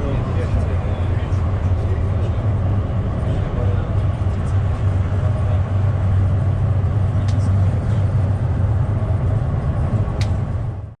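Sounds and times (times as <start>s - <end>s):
tram low rumble: 0.0s - 11.0s.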